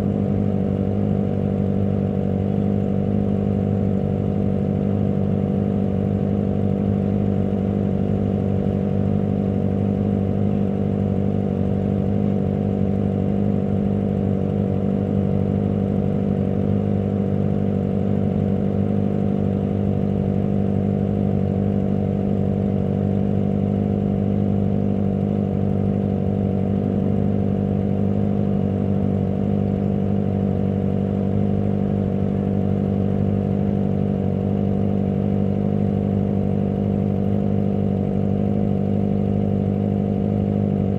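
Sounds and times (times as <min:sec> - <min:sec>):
motorcycle engine running steadily: 0:00.0 - 0:40.9.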